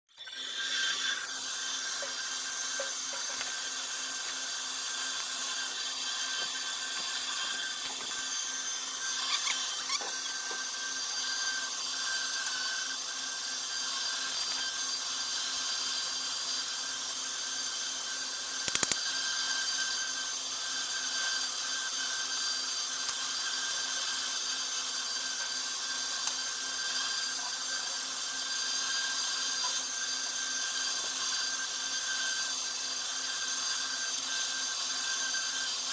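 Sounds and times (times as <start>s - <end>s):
power tool whining: 0.1s - 35.9s
sharp clicks: 18.6s - 19.0s.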